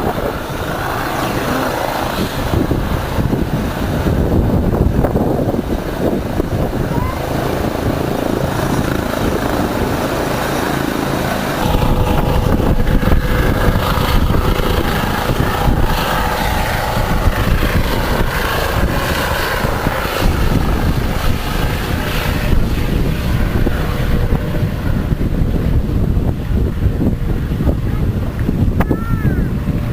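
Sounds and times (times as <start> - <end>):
wind buffeting microphone: 0.0 - 29.9
boat motor running: 11.4 - 22.6.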